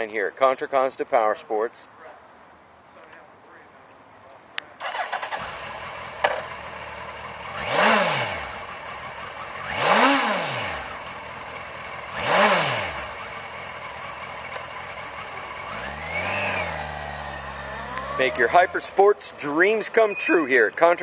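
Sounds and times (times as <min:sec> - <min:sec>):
engine revving: 0:04.8 - 0:20.2
motorcycle engine starting and idling: 0:04.8 - 0:21.0.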